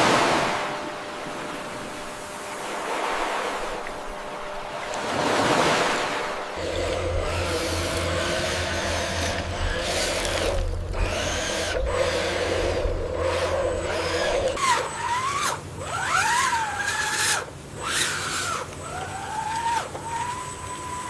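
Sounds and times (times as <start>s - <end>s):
high whines sliding in pitch: 0.0s - 16.8s
machine motor humming: 0.0s - 21.0s.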